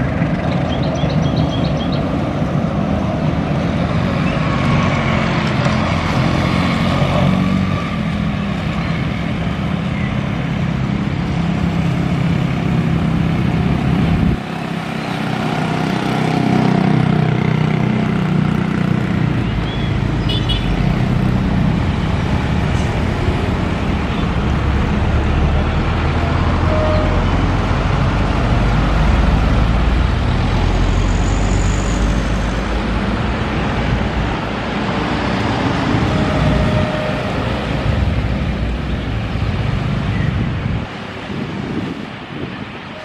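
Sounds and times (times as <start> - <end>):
road traffic: 0.0 - 43.0
train coaches rumbling: 20.7 - 43.0.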